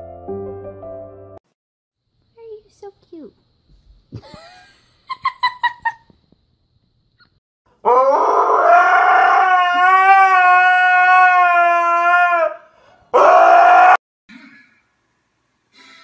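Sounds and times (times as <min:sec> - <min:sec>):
husky howling: 0:07.8 - 0:14.0.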